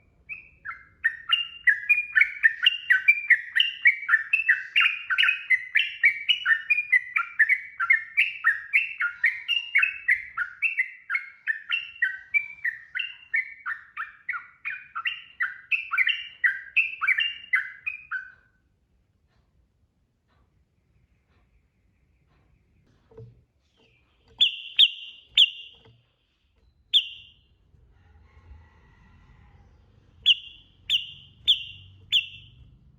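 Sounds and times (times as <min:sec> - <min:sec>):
bird singing warbled notes: 0:24.2 - 0:25.9, 0:26.6 - 0:27.5, 0:30.2 - 0:32.7.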